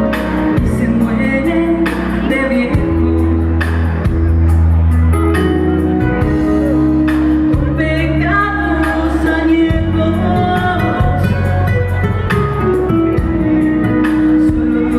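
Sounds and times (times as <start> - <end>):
woman singing: 0.0 - 3.8, 6.5 - 12.3, 13.2 - 14.9
instrumental accompaniment: 0.0 - 14.9.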